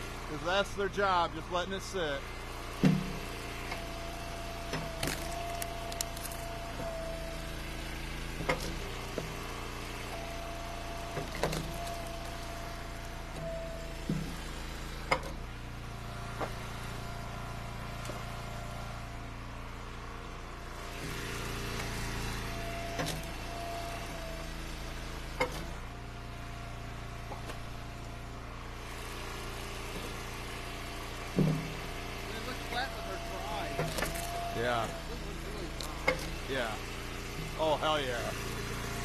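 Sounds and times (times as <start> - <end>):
log splitter engine running: 0.0 - 39.0
steady whine: 31.4 - 36.8.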